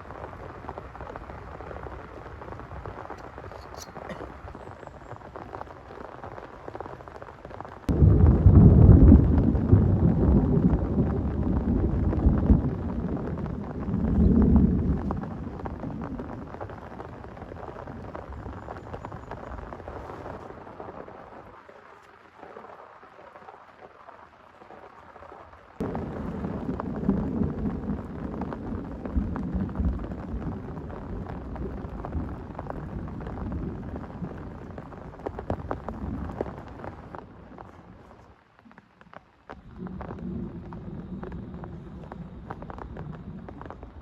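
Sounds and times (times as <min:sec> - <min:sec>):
heavy rain falling: 0:00.0 - 0:44.0
rolling thunder: 0:07.8 - 0:18.7, 0:25.8 - 0:38.0, 0:39.6 - 0:44.0.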